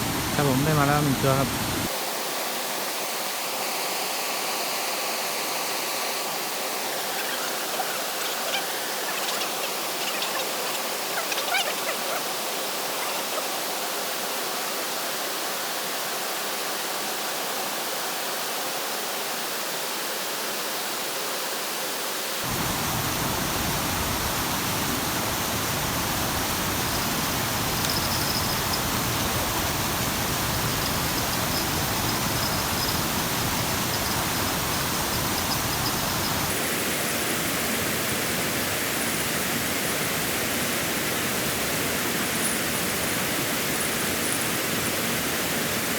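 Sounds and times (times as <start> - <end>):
rain hissing: 0.0 - 1.9, 22.4 - 36.8
river water flowing: 0.0 - 16.3, 22.4 - 45.9.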